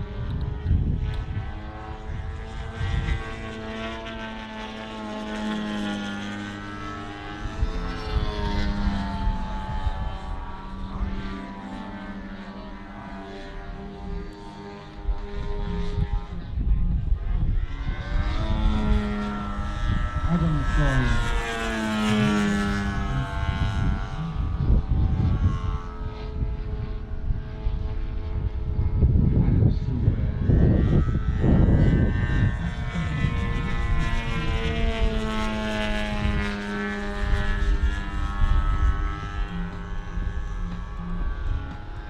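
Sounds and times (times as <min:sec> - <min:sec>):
model plane engines and propellers: 0:00.0 - 0:42.0
low rumble: 0:15.2 - 0:35.1.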